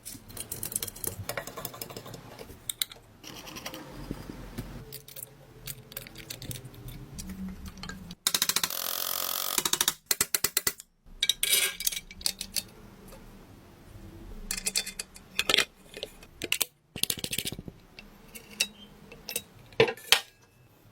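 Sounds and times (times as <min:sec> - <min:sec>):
metal tool parts clattering: 0:04.9 - 0:07.0, 0:11.2 - 0:12.7, 0:14.5 - 0:17.6.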